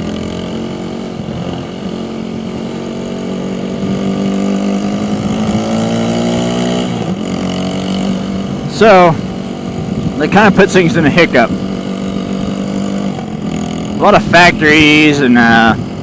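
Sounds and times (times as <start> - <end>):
motorcycle engine running: 0.0 - 16.0
wind noise: 8.4 - 12.6.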